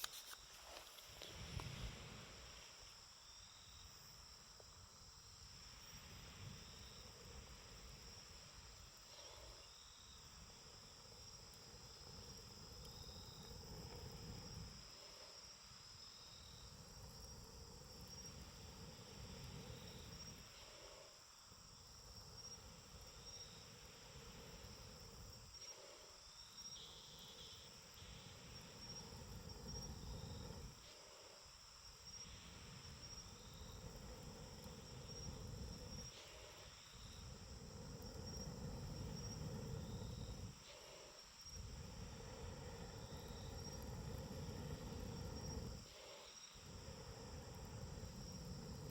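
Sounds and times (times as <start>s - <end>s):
insects chirping in trills: 0.0s - 48.9s
faint low rumble: 31.8s - 48.9s.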